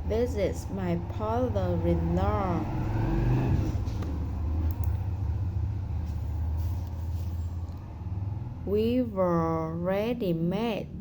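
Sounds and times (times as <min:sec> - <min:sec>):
low background rumble: 0:00.0 - 0:11.0
faint clicks: 0:04.0 - 0:05.0.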